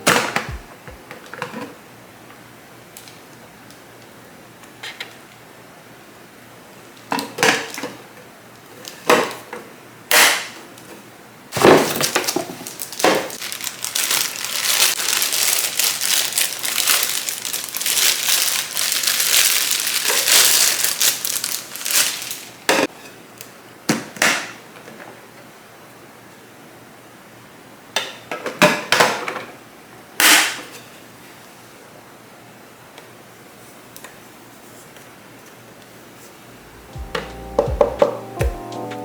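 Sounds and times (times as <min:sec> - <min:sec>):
plastic packaging crinkling: 0:12.0 - 0:22.7.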